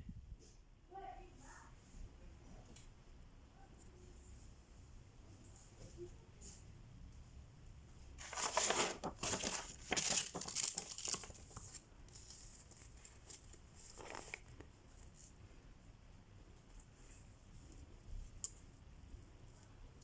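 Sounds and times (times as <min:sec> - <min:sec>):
crinkling rasping of materials handled: 0:08.0 - 0:20.0.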